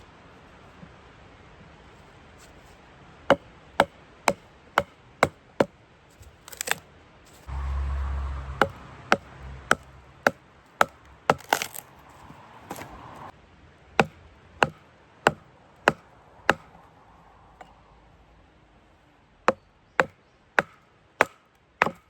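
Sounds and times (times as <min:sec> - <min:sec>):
low rumble: 0:07.5 - 0:10.3.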